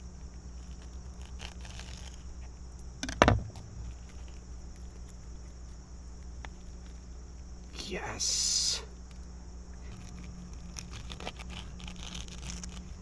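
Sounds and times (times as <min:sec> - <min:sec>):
steady low hum: 0:00.0 - 0:13.0
sharp knock: 0:03.0 - 0:03.9.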